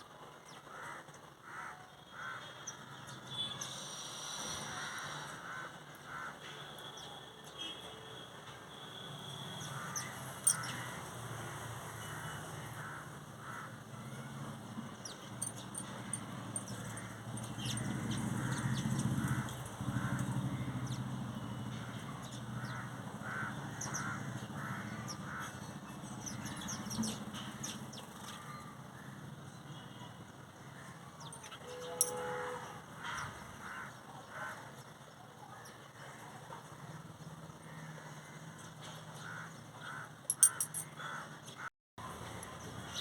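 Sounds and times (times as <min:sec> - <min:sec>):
crows cawing: 0:00.7 - 0:02.5, 0:04.8 - 0:06.5, 0:12.1 - 0:14.3, 0:16.8 - 0:20.7, 0:22.6 - 0:25.6, 0:33.0 - 0:34.6, 0:37.7 - 0:38.5, 0:39.2 - 0:41.4.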